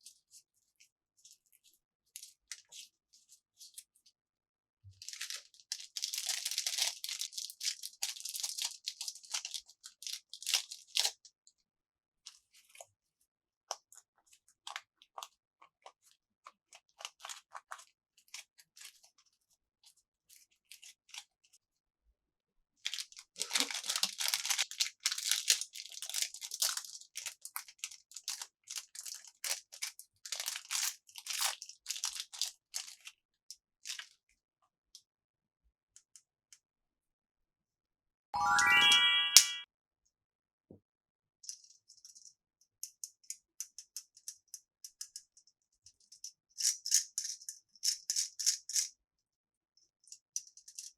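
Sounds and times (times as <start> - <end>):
plastic packaging crinkling: 5.0 - 11.1, 22.9 - 33.1.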